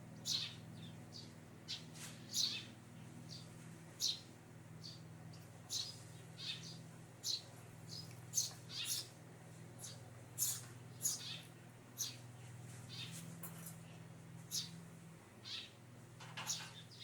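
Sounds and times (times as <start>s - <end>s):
sparrow chirping: 0.1s - 9.2s, 9.8s - 13.2s, 13.9s - 14.8s, 15.4s - 15.8s, 16.4s - 17.0s.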